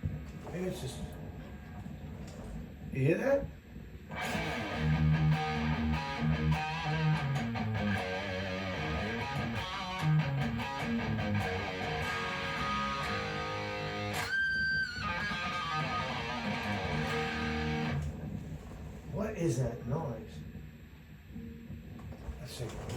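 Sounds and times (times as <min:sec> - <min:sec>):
electric guitar notes and chords: 0:04.1 - 0:18.2.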